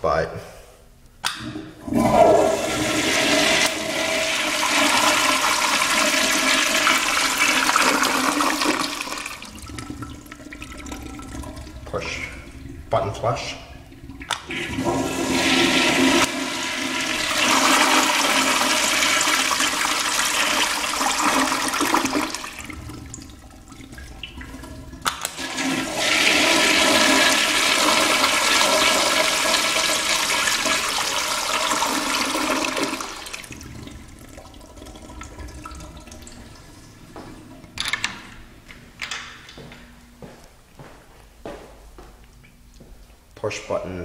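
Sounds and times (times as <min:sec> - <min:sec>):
toilet flushing: 0:01.4 - 0:38.6.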